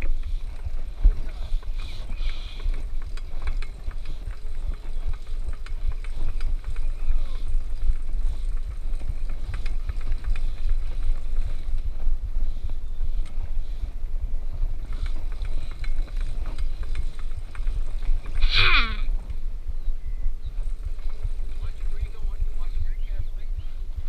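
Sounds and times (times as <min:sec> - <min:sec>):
faint clicks: 0:00.0 - 0:11.9, 0:13.0 - 0:13.6
wind rumble on microphone: 0:00.0 - 0:24.0
person exclaiming: 0:18.4 - 0:19.1.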